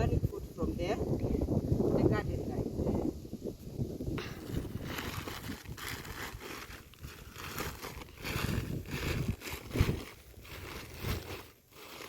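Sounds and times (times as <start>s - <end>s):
rustling and crunching handling noise: 4.2s - 12.0s.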